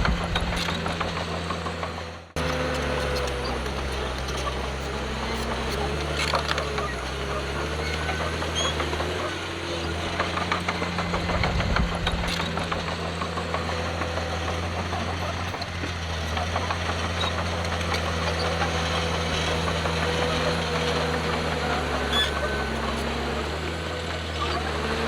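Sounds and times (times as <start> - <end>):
sharp clicks and rattles: 0.0 - 2.6, 8.3 - 22.3
heavy diesel engine running: 0.0 - 25.0.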